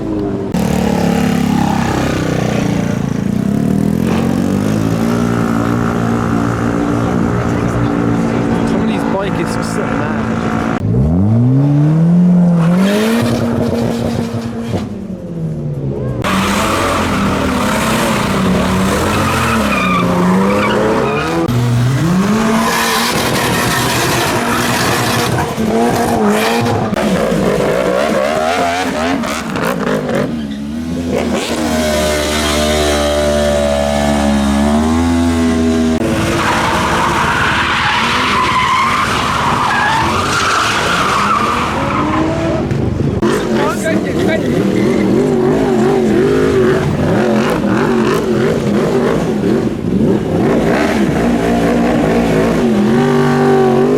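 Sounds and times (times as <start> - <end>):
car engine revving: 0.0 - 53.9
tyres squealing: 16.2 - 21.5, 36.1 - 42.6.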